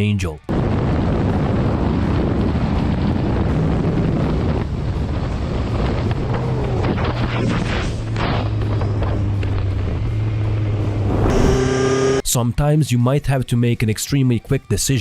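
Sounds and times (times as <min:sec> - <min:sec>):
wind rushing over microphone: 0:00.0 - 0:11.3
motorcycle engine hum: 0:01.0 - 0:12.2.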